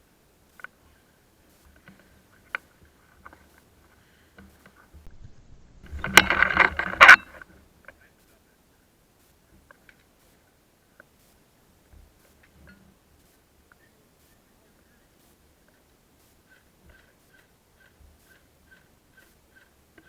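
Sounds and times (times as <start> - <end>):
mechanical clatter: 5.1 - 7.4
sharp clicks: 5.8 - 7.4.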